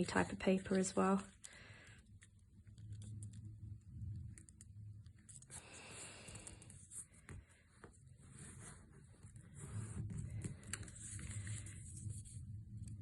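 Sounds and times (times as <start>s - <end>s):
low background hum: 0.0s - 13.0s
paper rustling as folded: 5.2s - 12.4s.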